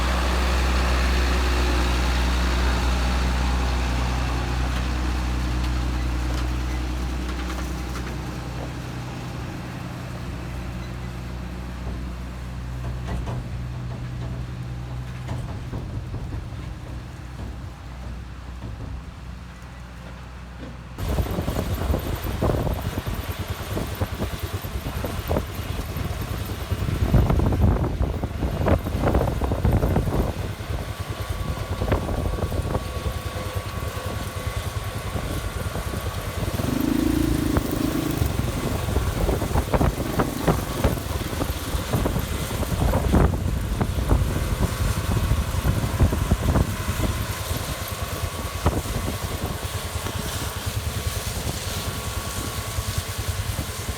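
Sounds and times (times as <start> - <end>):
farm machinery engine drone: 0.0 - 53.9.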